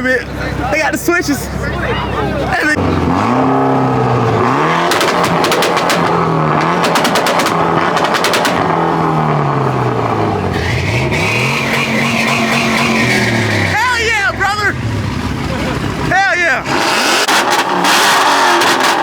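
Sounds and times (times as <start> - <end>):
car engine revving: 0.2 - 19.0
exhaust pops and crackles: 4.3 - 9.5, 11.6 - 13.8, 15.4 - 19.0.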